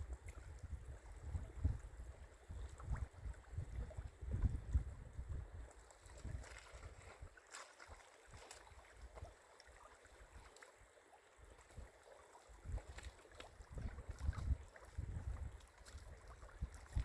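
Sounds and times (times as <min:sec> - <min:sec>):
wind buffeting microphone: 0:00.0 - 0:07.3, 0:12.6 - 0:17.0.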